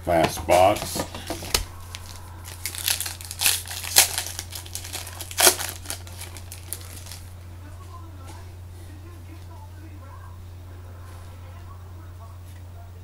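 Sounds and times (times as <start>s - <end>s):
plastic wrapping crinkling: 1.2s - 7.4s.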